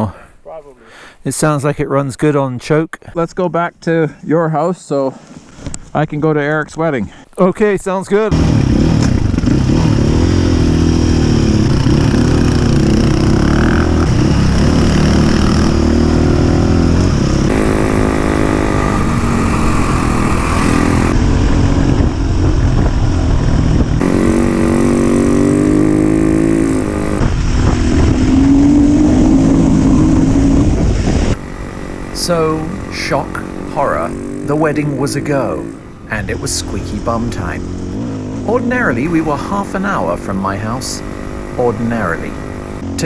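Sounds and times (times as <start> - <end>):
dirt bike engines revving: 8.3 - 43.0.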